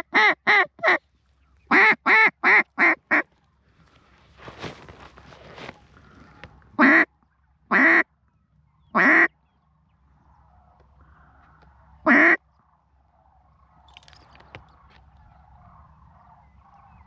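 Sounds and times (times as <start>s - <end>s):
duck call quacks: 0.0s - 1.0s, 1.7s - 3.2s, 6.8s - 7.1s, 7.7s - 8.1s, 9.0s - 9.3s, 12.0s - 12.4s.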